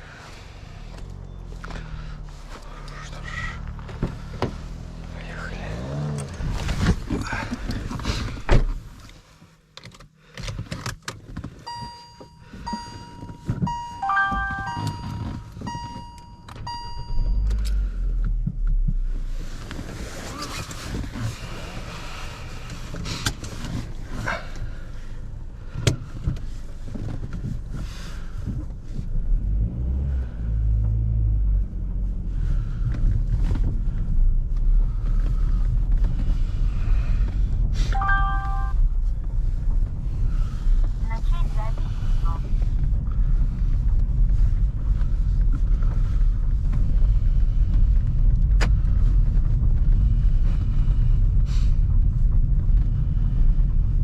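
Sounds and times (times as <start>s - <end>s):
low engine rumble: 0.0s - 10.3s, 11.2s - 54.0s
road noise: 0.0s - 54.0s
car clicks and thumps: 3.6s - 4.8s, 5.8s - 24.7s, 25.3s - 29.3s, 42.5s - 50.1s
short electronic beeps: 11.7s - 17.5s, 38.0s - 38.8s.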